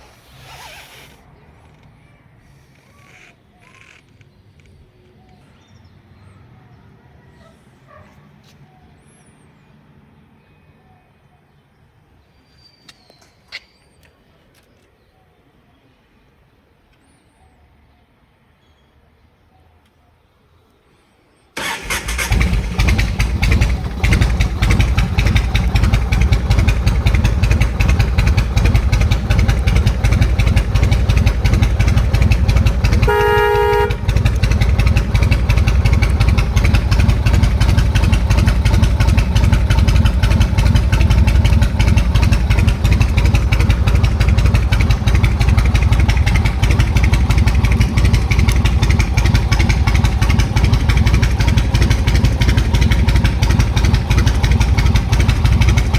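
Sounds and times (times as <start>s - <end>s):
motorcycle engine idling: 21.6s - 55.9s
motorcycle horn: 31.4s - 37.1s.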